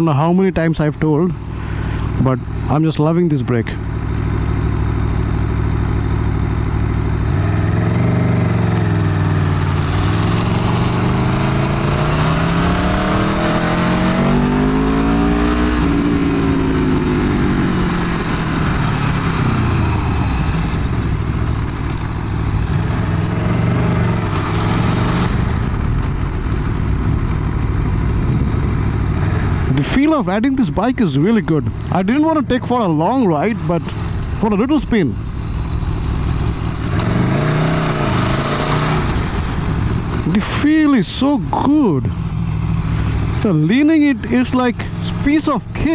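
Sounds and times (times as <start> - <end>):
motorcycle engine accelerating: 1.4 - 45.9
wind noise: 15.4 - 30.6.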